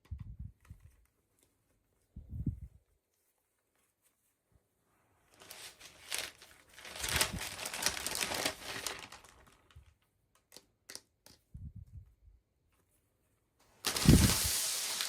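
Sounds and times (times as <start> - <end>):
plastic packaging crackling: 5.3 - 10.0, 13.7 - 15.0.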